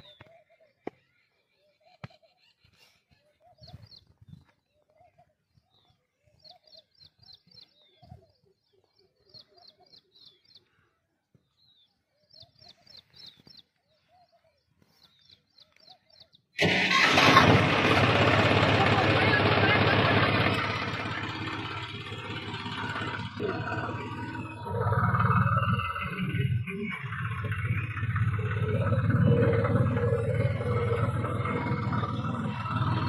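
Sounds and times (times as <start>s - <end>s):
birds chirping: 0.0s - 17.3s, 18.2s - 33.0s
rising and falling bird call: 20.6s - 33.0s.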